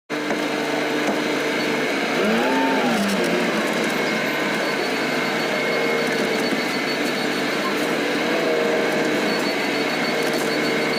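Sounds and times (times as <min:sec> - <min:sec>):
vehicle engine running: 0:00.1 - 0:10.9.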